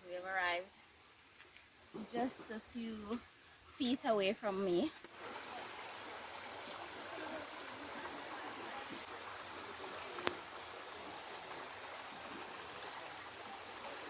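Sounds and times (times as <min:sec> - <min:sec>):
spring water gushing from rock: 0:05.1 - 0:14.0.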